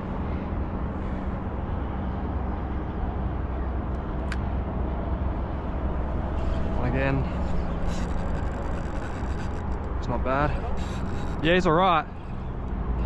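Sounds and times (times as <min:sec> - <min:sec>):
traffic engine rumble: 0:00.0 - 0:13.0
sharp clicks: 0:07.7 - 0:10.0.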